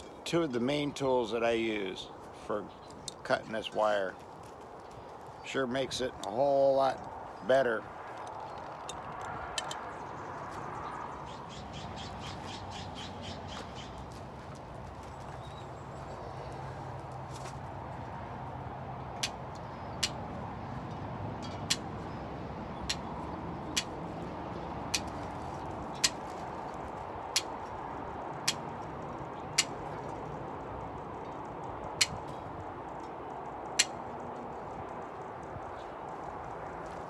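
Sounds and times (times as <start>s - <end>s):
wire cutters snipping mesh: 25.0s - 25.2s, 26.0s - 26.4s, 27.3s - 27.7s, 28.5s - 28.8s, 29.6s - 29.8s, 32.0s - 32.3s.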